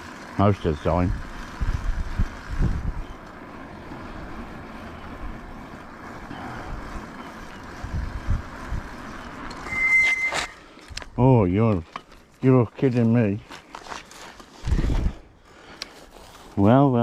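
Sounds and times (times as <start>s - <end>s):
road noise: 0.0s - 17.0s
wind buffeting microphone: 0.3s - 9.5s, 14.6s - 15.3s.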